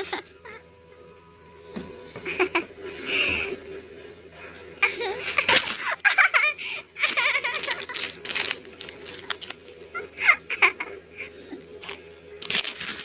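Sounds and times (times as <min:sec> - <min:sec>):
baby laughing: 0:00.0 - 0:00.6, 0:04.8 - 0:08.2, 0:09.9 - 0:11.0.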